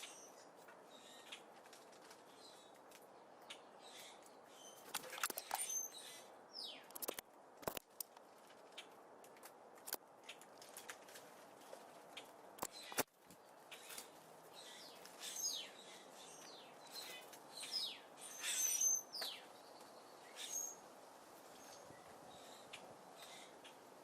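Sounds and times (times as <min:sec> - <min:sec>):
birds pecking at seeds: 0:00.0 - 0:05.9, 0:06.8 - 0:17.8.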